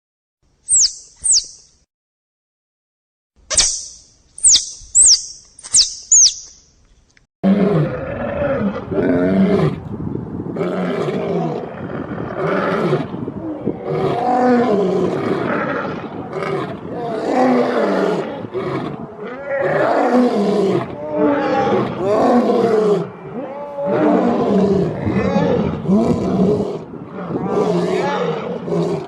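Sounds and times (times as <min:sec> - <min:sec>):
high falling chirps: 0:00.7 - 0:01.8, 0:03.5 - 0:06.8
large animal roaring and growling: 0:07.4 - 0:29.0.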